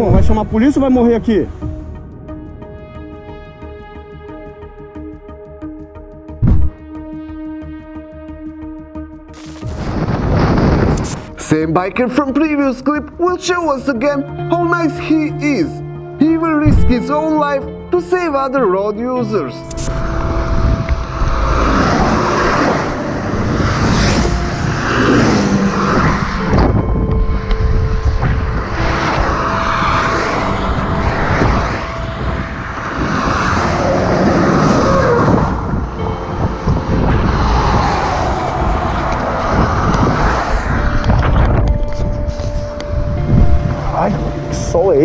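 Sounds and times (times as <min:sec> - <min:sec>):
road noise rush: 0:09.4 - 0:11.4, 0:19.2 - 0:45.0
motorcycle engine: 0:19.8 - 0:41.5.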